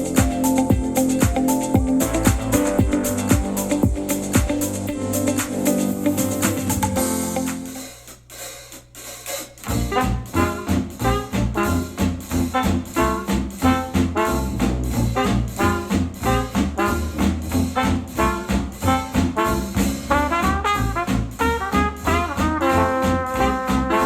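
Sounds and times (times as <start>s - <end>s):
electronic pop music: 0.0s - 8.0s
retro jazz with brass and drums: 0.0s - 24.0s.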